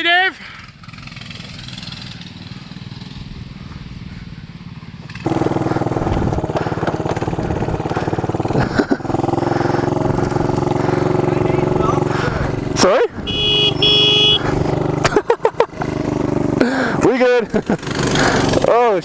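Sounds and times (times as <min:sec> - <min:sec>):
mini bike engine buzzing: 0:00.7 - 0:18.9
engine clattering: 0:05.0 - 0:13.7, 0:14.4 - 0:19.0.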